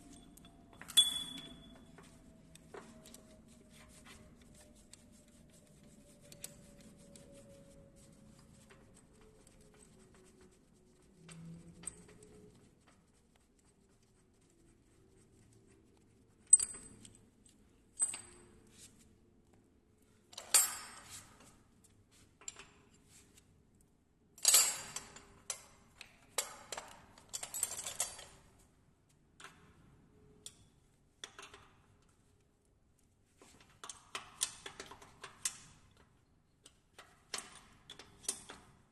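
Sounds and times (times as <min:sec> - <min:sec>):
metal tools clinking: 0:00.1 - 0:01.8.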